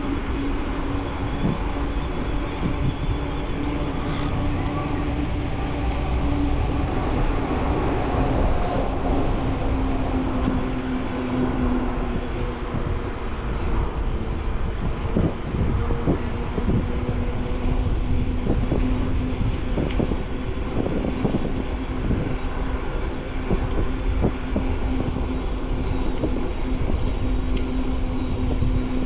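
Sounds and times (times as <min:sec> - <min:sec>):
wind on microphone: 0:00.0 - 0:29.0
steady hum: 0:03.4 - 0:11.8
bicycle tyre rumble: 0:03.9 - 0:11.5.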